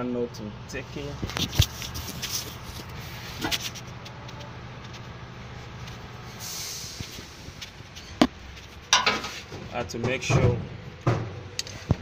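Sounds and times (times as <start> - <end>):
vehicle engine humming: 0.0 - 12.0
brief hiss: 6.4 - 7.3.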